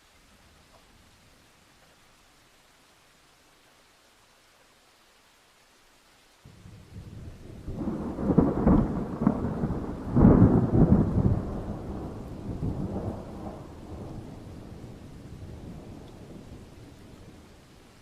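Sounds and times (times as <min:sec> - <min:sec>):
steady rain: 0:00.0 - 0:18.0
thunder cracking and rumbling: 0:06.5 - 0:17.5.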